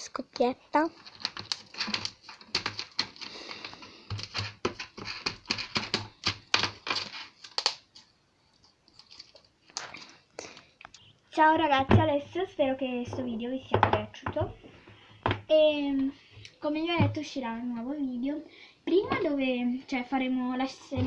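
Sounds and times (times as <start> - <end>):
slime popping and crackling: 1.0 - 3.3.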